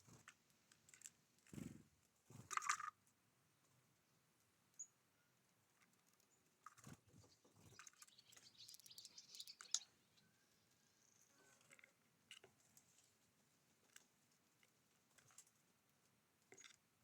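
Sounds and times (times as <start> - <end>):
birds pecking and rustling at seed: 0.0 - 17.0
bird chirp: 4.7 - 5.3, 6.2 - 11.7.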